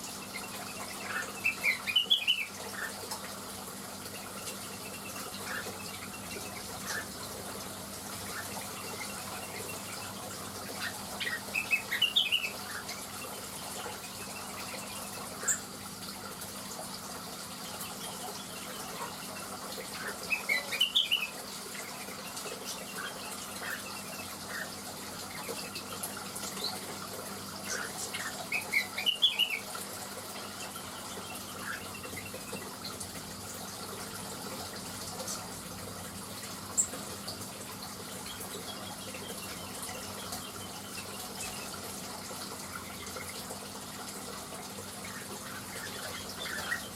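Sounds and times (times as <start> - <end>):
bird twittering song: 0.0 - 3.0, 4.0 - 15.7, 17.6 - 26.9, 27.6 - 33.2, 37.8 - 42.1, 44.9 - 46.9.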